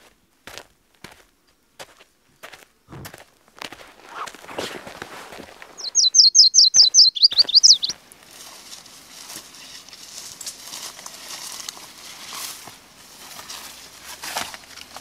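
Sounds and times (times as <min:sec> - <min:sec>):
footsteps through dry grass: 0:00.0 - 0:05.9, 0:07.2 - 0:15.0
songbird call: 0:05.8 - 0:08.0.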